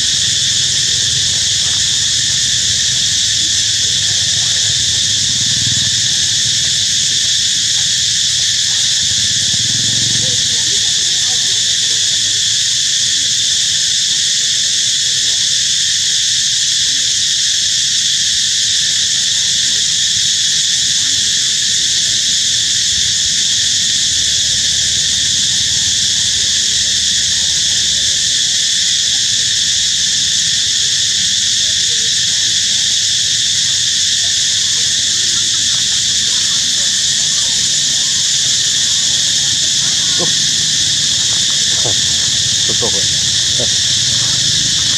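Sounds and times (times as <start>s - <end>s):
insect chorus shrilling: 0.0s - 44.9s.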